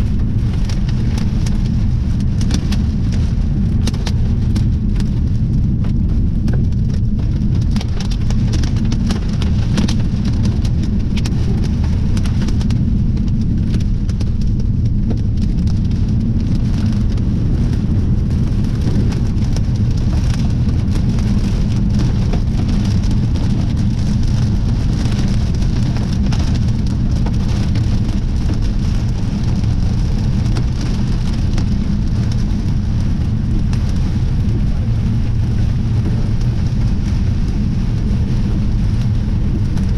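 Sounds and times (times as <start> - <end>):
heavy rain beating on a surface: 0.0 - 39.9
strong wind buffeting microphone: 0.0 - 39.9.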